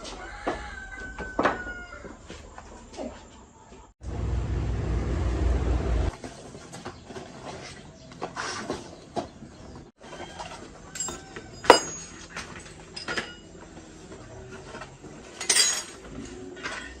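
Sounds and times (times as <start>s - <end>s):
metal tools clinking: 10.9s - 13.6s, 15.3s - 17.0s.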